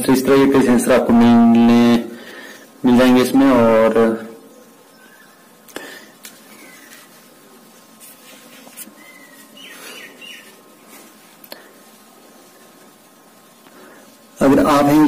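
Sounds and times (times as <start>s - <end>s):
faint bird chirps: 4.4s - 5.7s, 6.4s - 7.3s, 8.8s - 10.6s.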